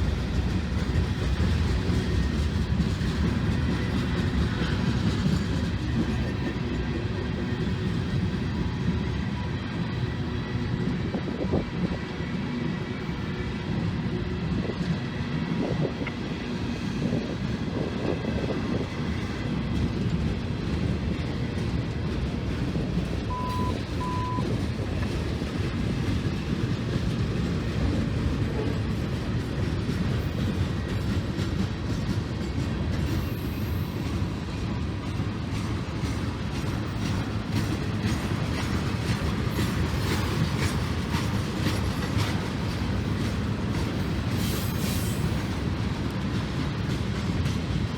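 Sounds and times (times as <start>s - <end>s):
freight train rolling past: 0.0s - 47.9s
train wheels running on rail: 0.0s - 47.9s
short beeps: 23.3s - 24.5s.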